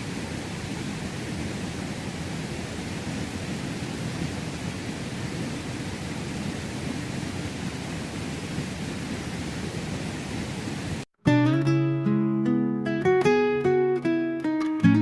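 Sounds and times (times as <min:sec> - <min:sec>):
rushing water: 0:00.0 - 0:11.1
acoustic guitar music: 0:11.2 - 0:15.0.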